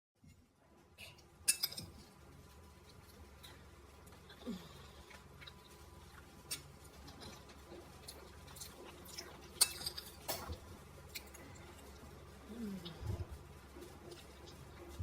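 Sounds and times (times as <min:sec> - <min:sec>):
cutlery clicking against dishes: 0:01.5 - 0:02.0, 0:09.6 - 0:10.6.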